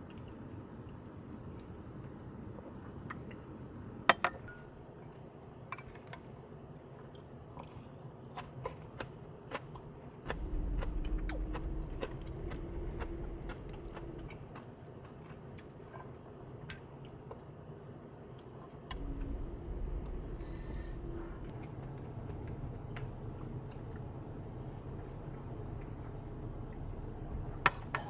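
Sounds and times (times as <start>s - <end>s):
low rumble with faint hum: 9.8s - 16.7s, 18.9s - 28.0s.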